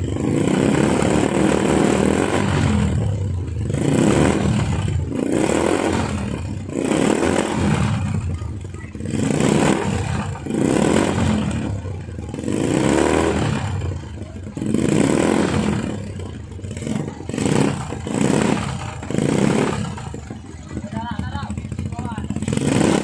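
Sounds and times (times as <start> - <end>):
motorcycle engines revving in blips: 0.0 - 23.0.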